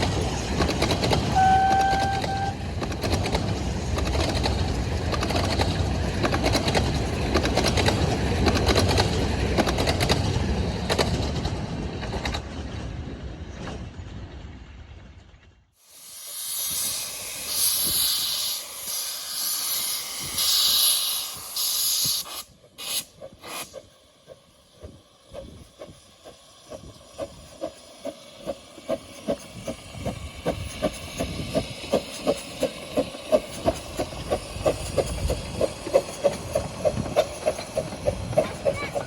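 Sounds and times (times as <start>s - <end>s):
steam locomotive chuffing: 0.0s - 11.8s, 15.8s - 39.0s
steam hissing: 15.8s - 39.0s.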